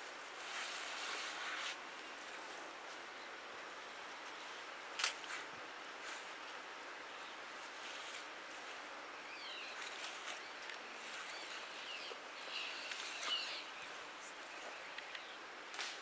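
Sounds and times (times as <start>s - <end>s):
outdoor hiss: 0.0s - 16.0s
small birds chirping: 6.0s - 15.5s.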